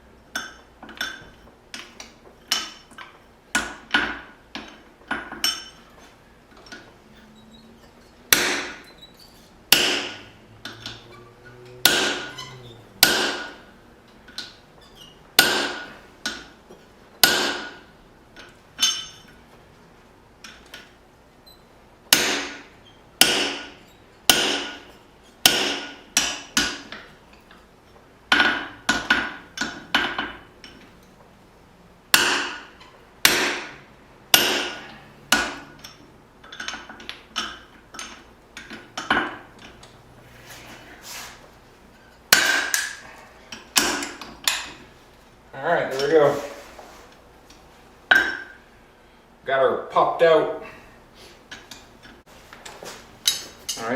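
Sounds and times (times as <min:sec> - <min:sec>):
hammer striking hot steel: 0:08.3 - 0:08.9, 0:09.7 - 0:13.6, 0:15.4 - 0:16.5, 0:17.2 - 0:17.8, 0:22.1 - 0:27.0, 0:32.1 - 0:35.9, 0:42.3 - 0:44.7.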